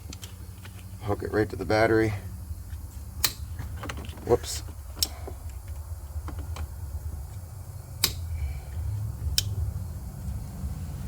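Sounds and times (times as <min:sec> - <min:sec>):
metallic clicks on battery terminal: 0:03.2 - 0:03.5, 0:05.0 - 0:05.7, 0:08.0 - 0:08.3, 0:09.3 - 0:09.6
low rumble: 0:04.7 - 0:11.0.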